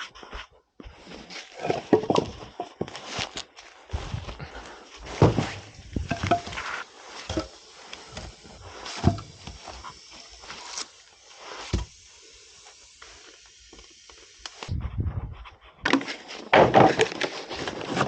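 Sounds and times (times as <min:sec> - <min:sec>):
firewood knocking and clattering: 0:01.6 - 0:02.9, 0:05.1 - 0:07.5, 0:08.1 - 0:09.7, 0:15.8 - 0:17.4.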